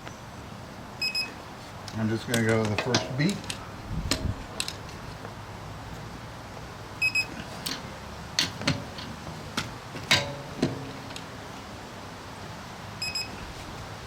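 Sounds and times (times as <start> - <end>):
torque wrench beeps: 1.0 - 1.4, 7.0 - 7.3, 13.0 - 13.4.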